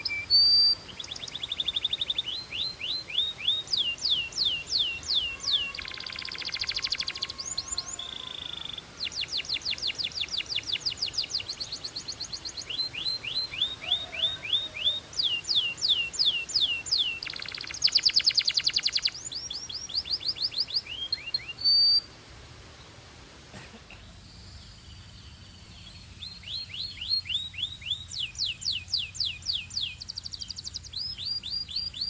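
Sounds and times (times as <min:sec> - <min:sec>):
canary singing: 0:00.0 - 0:22.1, 0:25.8 - 0:32.0.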